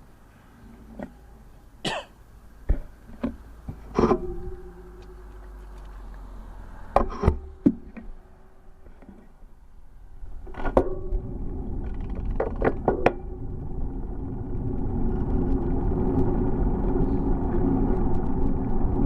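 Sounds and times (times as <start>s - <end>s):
wind rumble: 2.4s - 19.0s
bicycle rolling noise: 2.5s - 19.0s
sharp knocks and rattles: 10.4s - 13.8s.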